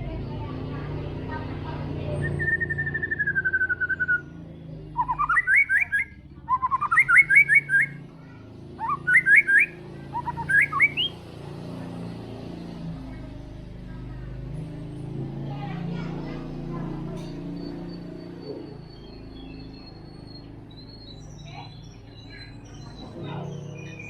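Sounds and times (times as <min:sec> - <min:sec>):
bird whistling song: 0:02.1 - 0:08.0, 0:08.8 - 0:11.2, 0:17.4 - 0:24.0.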